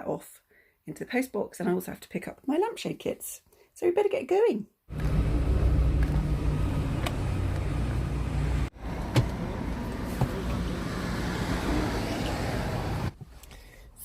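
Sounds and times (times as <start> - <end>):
car engine and road rumble: 4.9 - 13.6.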